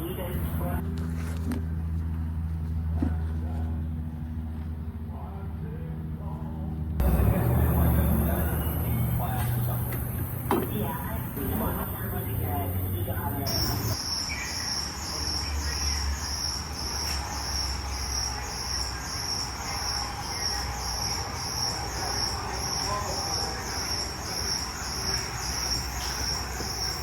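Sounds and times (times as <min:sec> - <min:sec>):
steady low hum: 0:00.0 - 0:27.0
insect chirping: 0:07.0 - 0:27.0.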